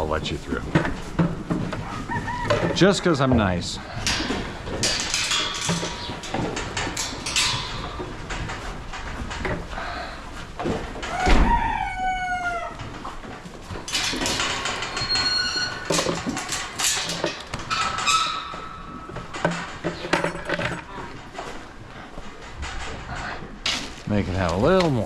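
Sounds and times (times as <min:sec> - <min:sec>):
chickens clucking: 0:00.0 - 0:23.6
long drawn-out chicken call: 0:02.0 - 0:02.6, 0:11.1 - 0:12.8.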